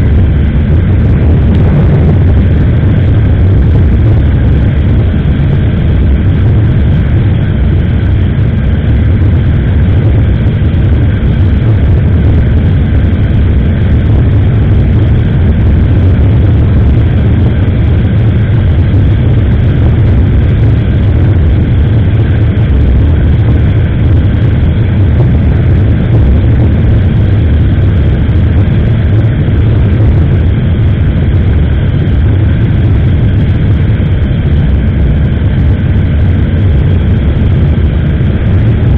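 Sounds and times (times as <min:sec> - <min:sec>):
road noise: 0:00.0 - 0:05.9
wind rushing on microphone: 0:00.0 - 0:38.9.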